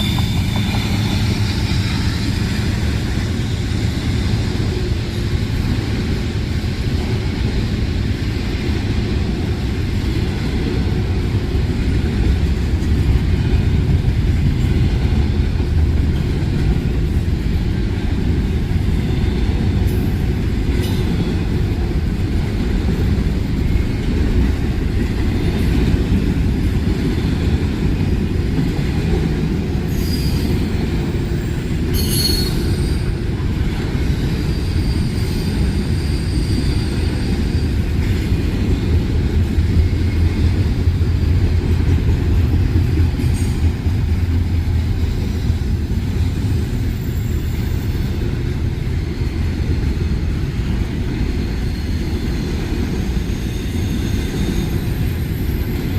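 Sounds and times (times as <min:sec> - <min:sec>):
high wheel squeals: 0:00.0 - 0:02.8, 0:29.9 - 0:30.8, 0:31.4 - 0:33.2, 0:34.3 - 0:38.1, 0:51.3 - 0:55.8
freight train rumbling past: 0:00.0 - 0:55.9.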